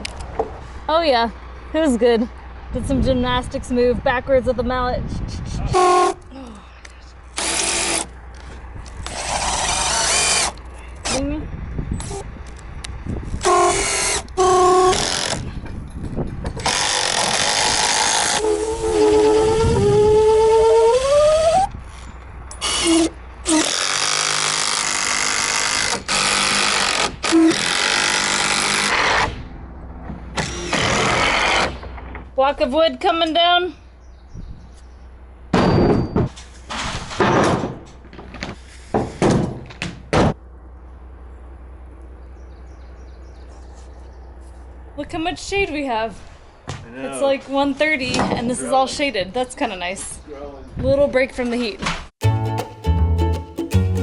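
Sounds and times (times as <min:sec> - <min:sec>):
power drill driving screws: 0:07.4 - 0:08.1, 0:09.0 - 0:11.2, 0:13.4 - 0:15.4, 0:16.6 - 0:18.6, 0:22.6 - 0:29.3, 0:30.4 - 0:31.8
heavy wooden knocks and thuds: 0:35.5 - 0:40.4.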